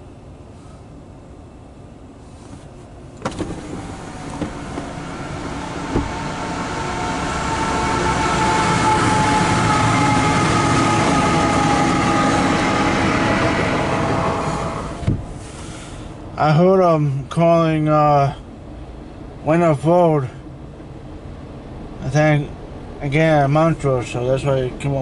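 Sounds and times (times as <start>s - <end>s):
steady tones: 3.2s - 15.3s
freight train passing: 3.6s - 15.4s.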